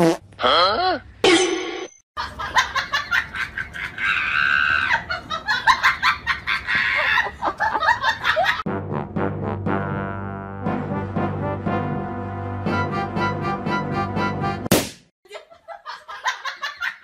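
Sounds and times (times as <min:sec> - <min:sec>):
person laughing hard: 0:02.2 - 0:08.6.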